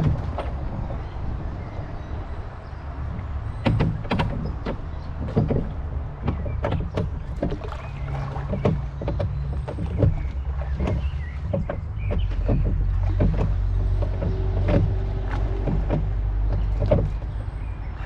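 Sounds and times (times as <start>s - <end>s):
oars splashing: 0.0s - 18.0s
wind rumble on microphone: 0.0s - 18.0s
sharp knocks: 3.6s - 17.3s.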